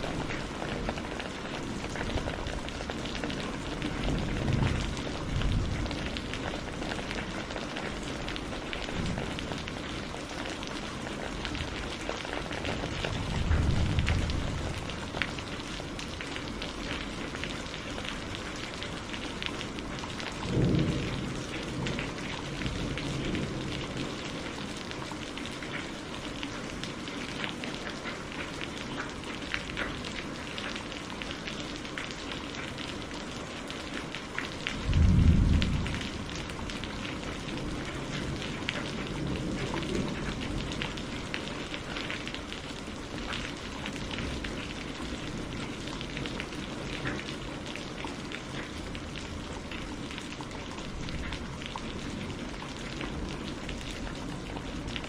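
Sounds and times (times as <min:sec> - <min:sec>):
thunder rumbling: 0:00.0 - 0:09.8, 0:11.3 - 0:15.6, 0:20.4 - 0:24.3, 0:34.8 - 0:41.3
rain pattering: 0:00.0 - 0:55.0.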